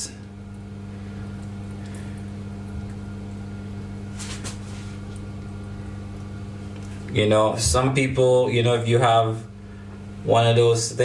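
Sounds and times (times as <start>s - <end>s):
low electrical hum: 0.0s - 11.0s
soft rustle: 4.1s - 5.2s.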